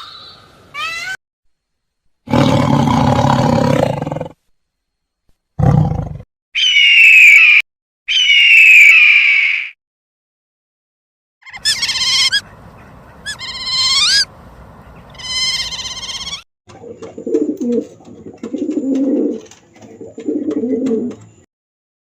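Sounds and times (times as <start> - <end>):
high-pitched animal calls: 0.0 - 1.2, 6.6 - 9.8, 11.4 - 14.3, 15.0 - 16.4
animal low roar: 2.3 - 4.4, 5.6 - 6.2.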